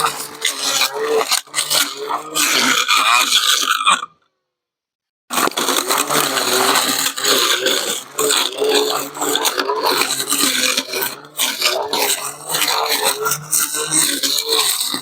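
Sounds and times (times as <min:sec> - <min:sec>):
brush cutter motor running: 0:00.0 - 0:03.8, 0:05.3 - 0:15.0.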